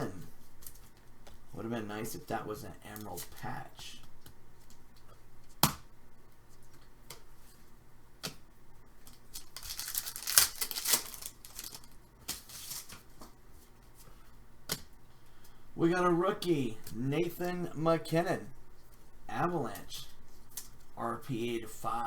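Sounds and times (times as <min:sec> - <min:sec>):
wrapper tearing and crinkling: 0:09.1 - 0:13.0.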